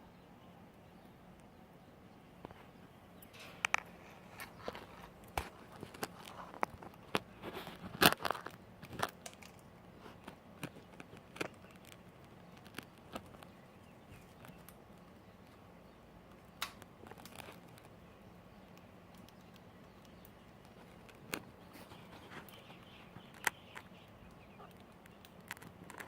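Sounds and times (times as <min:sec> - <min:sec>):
crinkly rustling of paper: 0:03.3 - 0:15.7, 0:16.8 - 0:18.0, 0:19.2 - 0:24.0.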